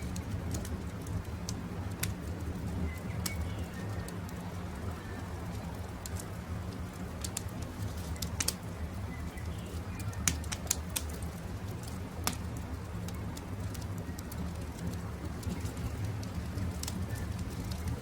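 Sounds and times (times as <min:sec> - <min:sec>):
campfire crackling and popping: 0:00.0 - 0:18.0
faint bird chirps: 0:02.7 - 0:04.2, 0:09.0 - 0:10.4.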